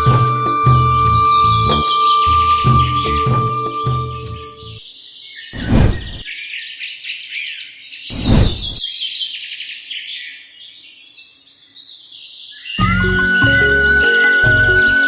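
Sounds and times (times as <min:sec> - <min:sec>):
small birds chirping: 0:00.0 - 0:12.8
loud rushing noises: 0:05.6 - 0:06.2, 0:08.1 - 0:08.8.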